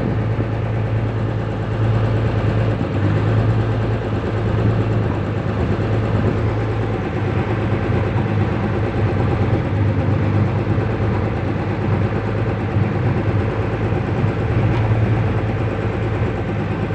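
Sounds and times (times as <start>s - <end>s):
boat engine humming: 0.0s - 16.9s.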